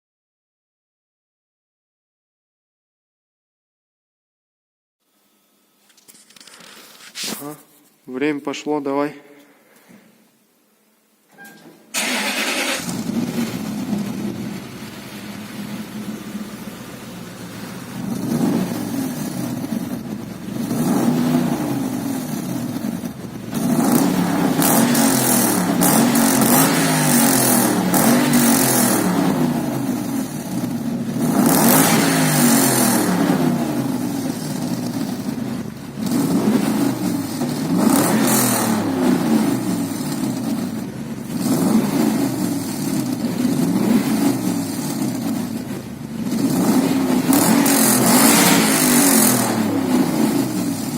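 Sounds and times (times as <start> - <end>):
car engine revving: 12.0 - 50.9.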